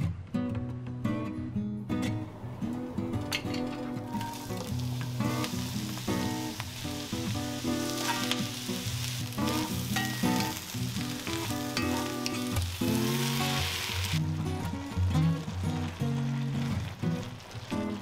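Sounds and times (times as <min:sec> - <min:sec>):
background music: 0:00.0 - 0:18.0
vegetables sizzling in oil: 0:04.1 - 0:18.0.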